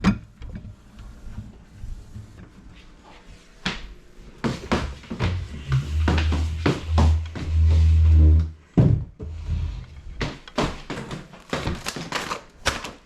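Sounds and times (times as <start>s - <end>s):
low music bass: 4.6s - 10.0s
kitchen doors knocking and clattering: 8.7s - 9.3s.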